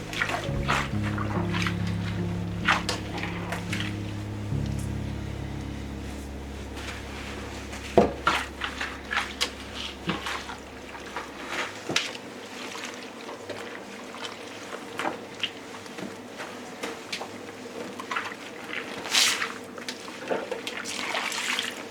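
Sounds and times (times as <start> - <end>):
low hum: 0.0 - 11.9.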